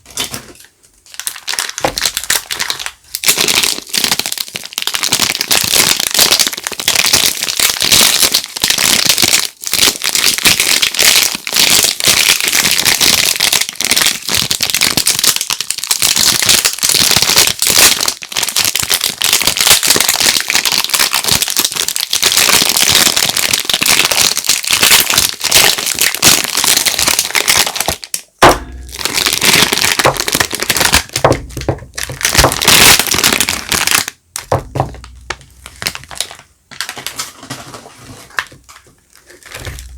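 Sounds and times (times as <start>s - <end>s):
packaging crinkling: 1.0s - 39.9s
sharp knock: 28.4s - 30.5s, 34.4s - 36.0s
low thuds: 28.4s - 32.7s, 34.3s - 36.2s
rustling handling noise: 28.4s - 39.9s.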